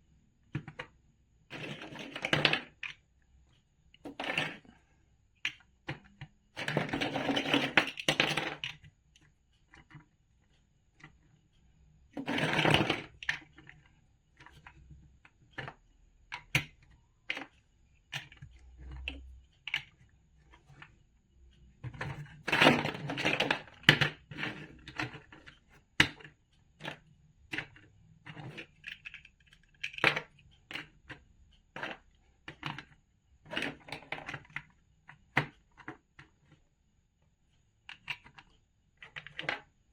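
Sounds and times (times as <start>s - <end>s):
plastic blocks clicking and clattering: 1.5s - 3.0s, 4.1s - 4.7s, 5.4s - 8.9s, 12.2s - 13.8s, 15.5s - 16.7s, 17.3s - 20.0s, 21.8s - 31.2s, 31.8s - 36.6s, 37.9s - 39.7s.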